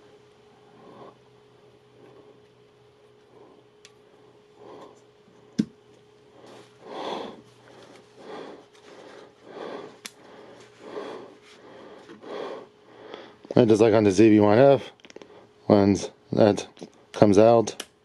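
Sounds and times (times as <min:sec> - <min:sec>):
soft rustling of handling: 0:07.4 - 0:09.4.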